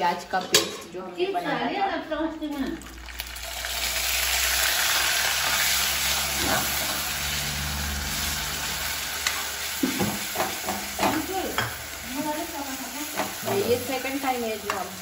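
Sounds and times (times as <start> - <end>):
food sizzling in oil: 2.5 - 15.0
spoon knocking against pan: 9.8 - 11.8.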